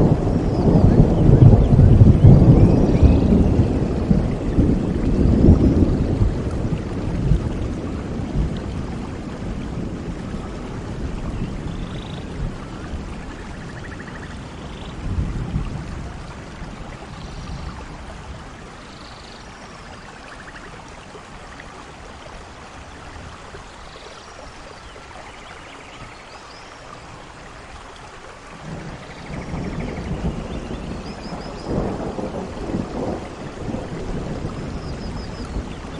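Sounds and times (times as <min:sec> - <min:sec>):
rolling thunder: 0:00.0 - 0:18.6, 0:28.5 - 0:35.9
steady rainfall: 0:00.0 - 0:35.9.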